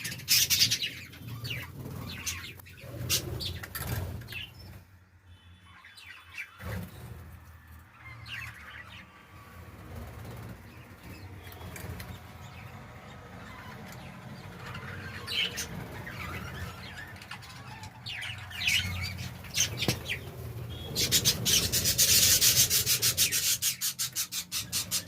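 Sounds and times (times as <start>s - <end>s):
budgerigars chirping: 0.0s - 4.8s, 13.4s - 25.0s
wings fluttering: 9.4s - 12.8s.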